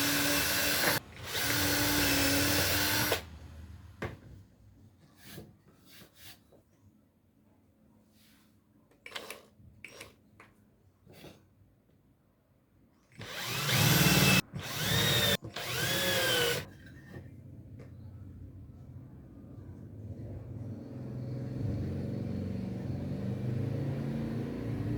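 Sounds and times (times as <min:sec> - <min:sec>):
electric drill motor whine: 0:00.0 - 0:03.2, 0:13.2 - 0:16.6.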